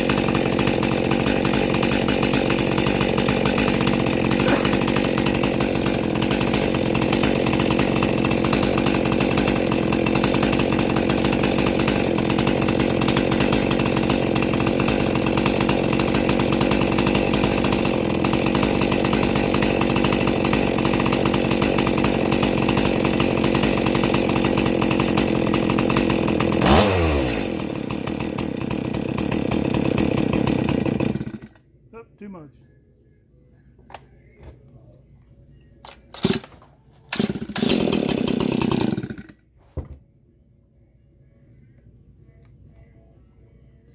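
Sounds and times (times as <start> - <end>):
chainsaw engine revving: 0.0 - 31.6, 36.2 - 36.5, 37.1 - 39.4.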